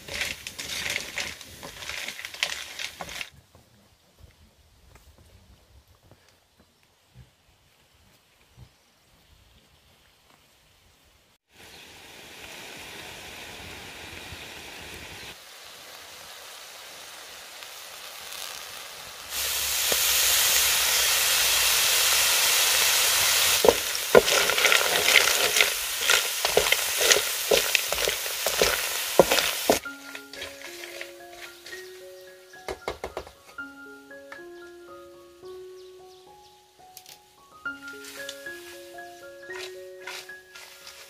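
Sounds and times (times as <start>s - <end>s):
snails sizzling in a wok: 0.0s - 3.3s, 11.7s - 32.2s, 39.4s - 41.0s.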